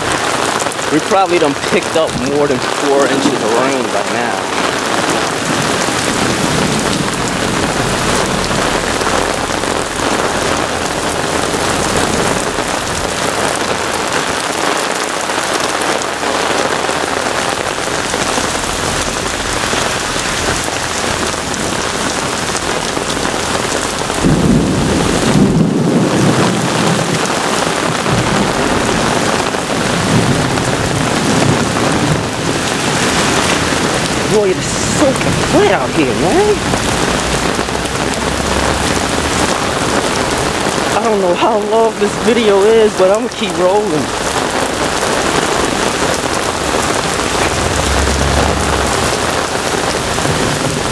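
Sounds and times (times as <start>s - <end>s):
heavy rain pouring: 0.0s - 50.9s
low rumble of thunder: 4.5s - 34.3s, 44.1s - 50.9s.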